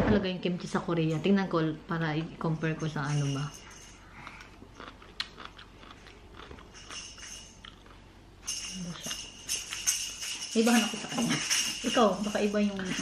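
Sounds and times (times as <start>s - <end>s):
small bell jingling: 2.5s - 4.2s, 6.7s - 7.7s, 8.4s - 13.0s
person chewing crunchy food: 4.1s - 8.1s.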